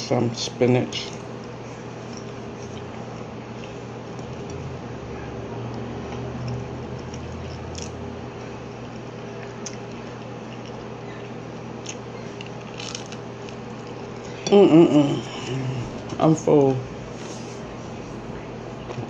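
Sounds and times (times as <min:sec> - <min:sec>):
steady low hum: 0:00.0 - 0:19.0
chewing and mouth sounds: 0:00.9 - 0:16.2.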